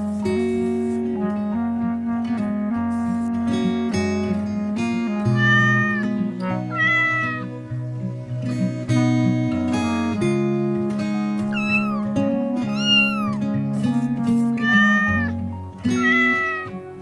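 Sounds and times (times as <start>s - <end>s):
background music: 0.0s - 17.0s
cat meowing: 5.4s - 7.6s, 11.5s - 13.4s, 14.5s - 16.8s.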